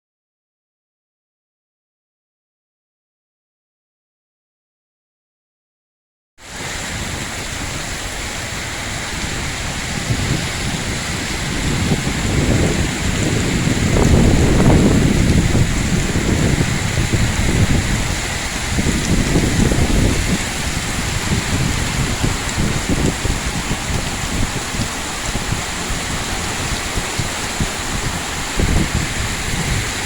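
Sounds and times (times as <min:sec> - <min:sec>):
heavy rain: 0:06.4 - 0:30.0
wind buffeting microphone: 0:06.4 - 0:30.0.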